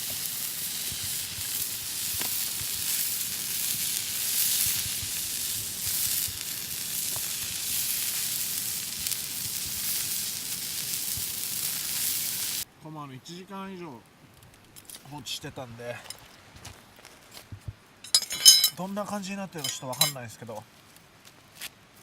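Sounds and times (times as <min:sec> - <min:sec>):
steak sizzling: 0:00.0 - 0:12.7, 0:19.6 - 0:20.2.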